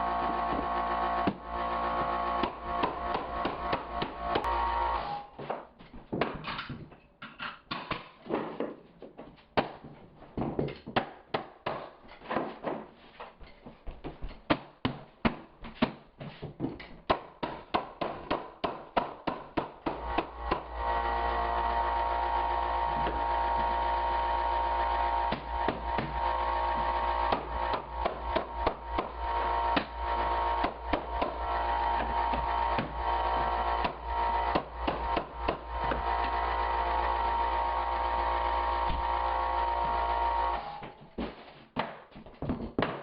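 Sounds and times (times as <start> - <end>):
mallet and nailer knocking: 0.2 - 4.5, 17.0 - 20.7, 25.3 - 36.4.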